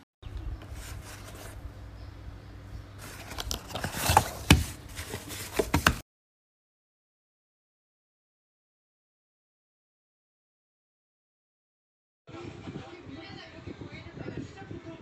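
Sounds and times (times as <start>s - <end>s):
handling rustling and scraping: 0.5s - 1.7s, 3.0s - 6.0s.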